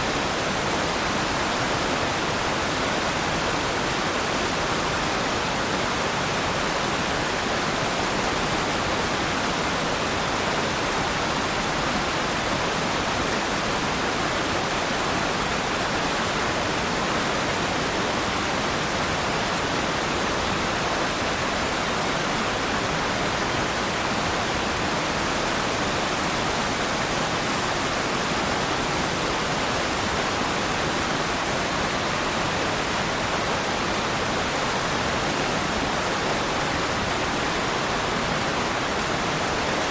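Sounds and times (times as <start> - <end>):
waterfall pouring and splashing: 0.0 - 39.9.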